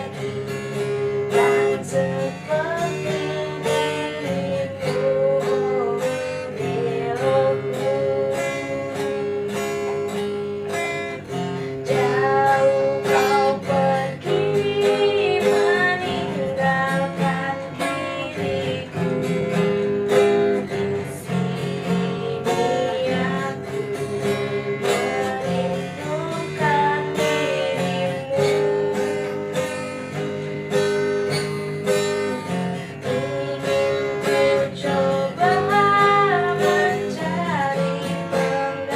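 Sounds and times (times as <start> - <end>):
acoustic guitar strumming: 0.0 - 38.9
person singing: 0.0 - 38.9.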